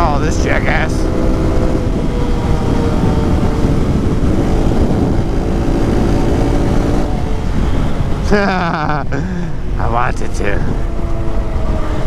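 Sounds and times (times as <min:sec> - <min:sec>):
small motorcycle engine running: 0:00.0 - 0:08.8
wind buffeting microphone: 0:00.0 - 0:12.0.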